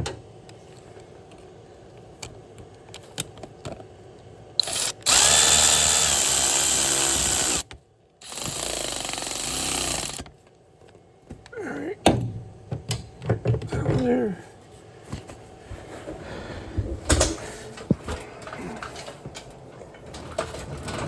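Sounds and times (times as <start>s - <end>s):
handheld power tool running: 4.6s - 10.3s.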